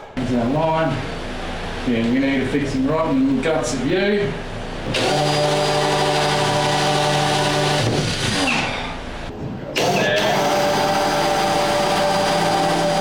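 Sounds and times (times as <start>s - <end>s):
power tool motor running: 4.2s - 13.0s.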